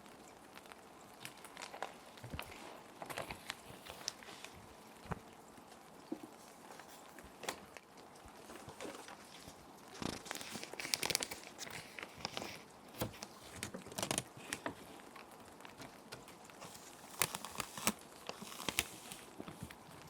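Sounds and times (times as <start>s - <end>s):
rain hissing: 0.0s - 20.0s
plastic sheet protectors crinkling: 8.5s - 20.0s.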